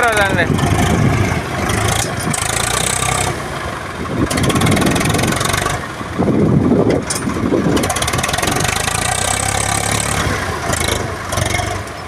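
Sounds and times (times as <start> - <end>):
tractor engine revving: 0.0 - 12.0.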